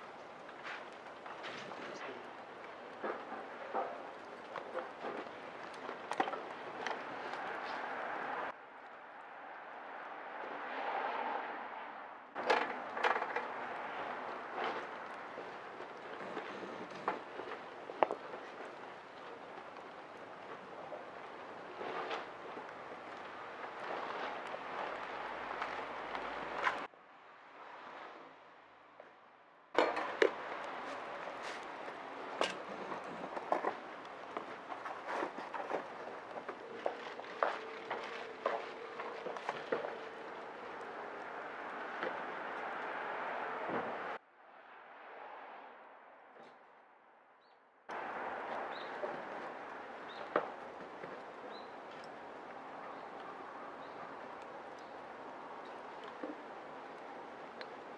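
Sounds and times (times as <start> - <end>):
wood fire crackling and popping: 0.0 - 8.6, 12.4 - 26.9, 29.8 - 44.2, 47.9 - 57.9
small birds chirping: 48.7 - 49.0, 50.0 - 50.4, 51.4 - 52.0.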